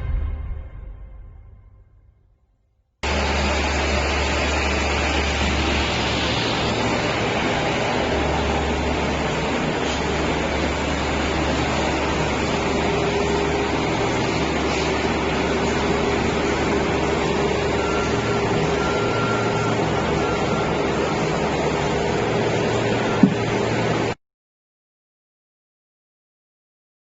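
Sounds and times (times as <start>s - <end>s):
industrial machinery humming: 3.0s - 24.2s.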